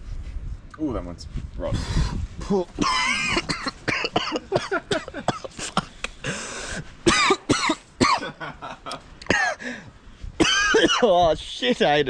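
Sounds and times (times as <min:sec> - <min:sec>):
men coughing and gagging: 0:02.8 - 0:09.8, 0:10.4 - 0:11.1.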